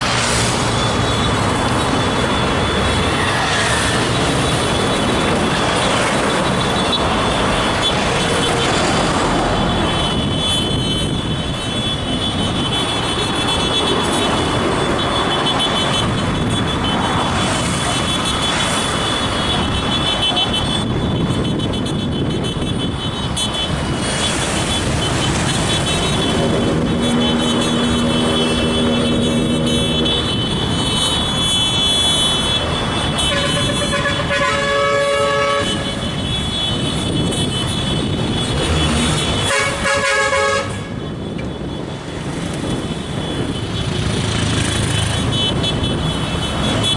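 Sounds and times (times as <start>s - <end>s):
motorcycle engines: 0.0s - 46.9s
street traffic: 0.0s - 46.9s
horn-like tone: 24.6s - 37.9s, 38.6s - 41.0s.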